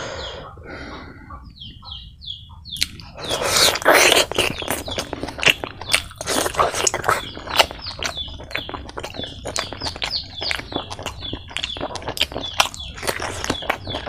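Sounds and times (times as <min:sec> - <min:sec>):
wet chewing with smacking: 0:02.8 - 0:14.0.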